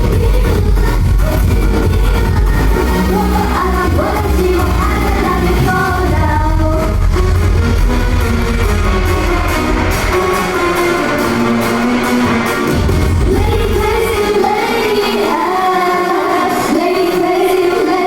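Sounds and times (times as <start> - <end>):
heavy bass beat: 0.0 - 15.1
pop music with sung vocals: 0.0 - 18.0.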